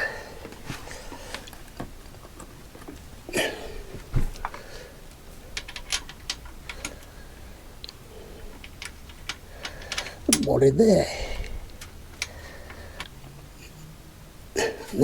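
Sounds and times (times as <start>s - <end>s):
clinks of bolts and hand tools: 5.5s - 7.1s, 8.5s - 10.7s.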